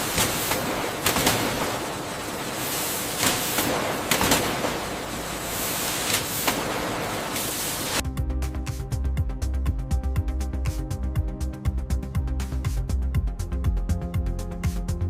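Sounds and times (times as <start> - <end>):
factory machinery hiss: 0.0 - 8.1
electronic music with beat: 8.0 - 15.0.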